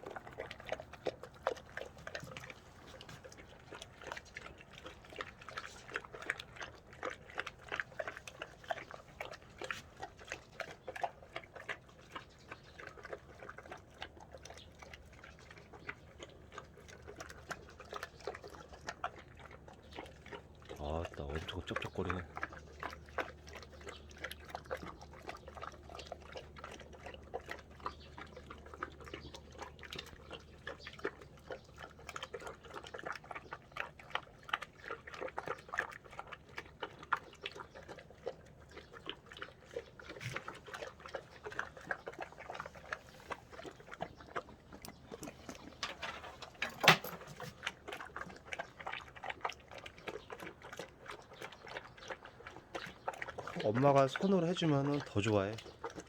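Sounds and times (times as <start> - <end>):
dog chomping food: 15.2 - 56.0.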